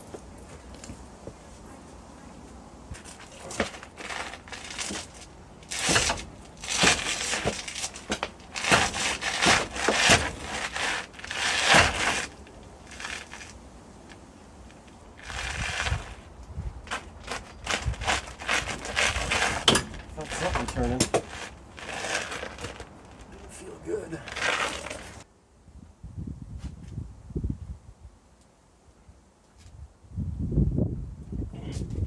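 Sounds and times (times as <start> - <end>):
hand tools clanking on metal: 3.0 - 12.4, 19.2 - 22.8.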